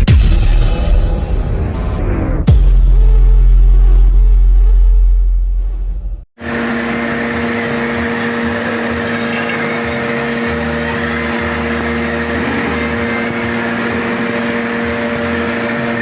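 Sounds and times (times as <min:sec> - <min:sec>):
metal lathe humming: 0:06.4 - 0:16.0.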